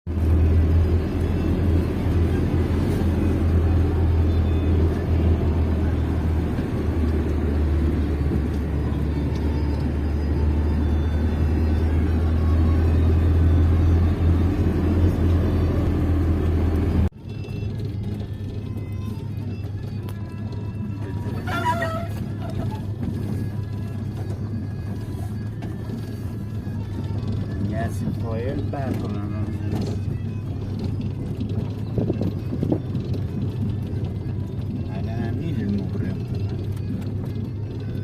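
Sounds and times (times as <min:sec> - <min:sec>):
motor vehicle rumbling: 0:00.0 - 0:38.0.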